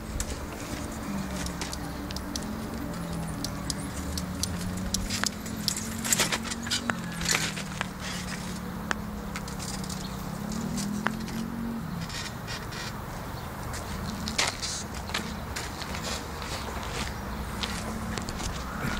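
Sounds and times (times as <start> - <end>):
bonfire crackling and popping: 1.2 - 7.0.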